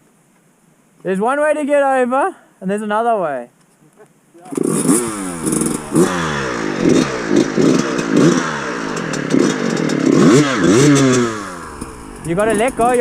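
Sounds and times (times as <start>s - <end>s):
dirt bike engine revving: 4.5s - 13.0s.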